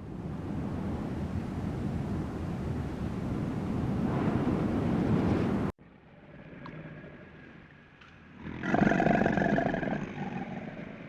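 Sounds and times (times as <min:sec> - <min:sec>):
big cat roaring: 0:08.4 - 0:11.0.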